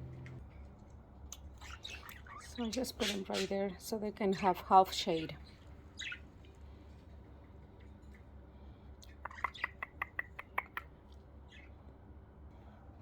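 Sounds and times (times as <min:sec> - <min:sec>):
faint low hum: 0:00.0 - 0:13.0
budgies pecking seed: 0:01.6 - 0:03.6, 0:09.0 - 0:10.9.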